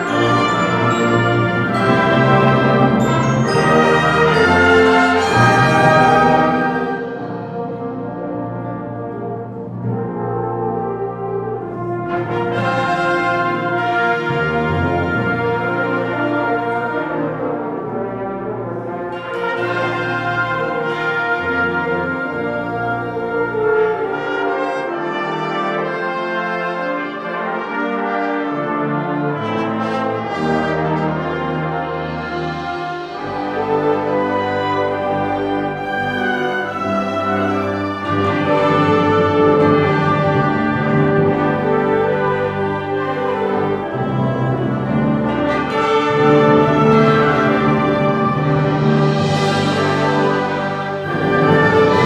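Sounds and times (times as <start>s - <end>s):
concert band playing: 0.0s - 9.0s, 29.5s - 52.0s
sustained brass chords: 0.0s - 52.0s.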